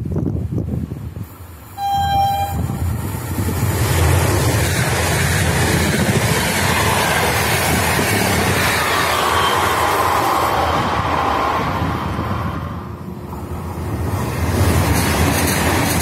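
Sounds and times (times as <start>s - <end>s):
train wheels on rails: 0.0s - 16.0s
train horn blast: 1.8s - 2.8s.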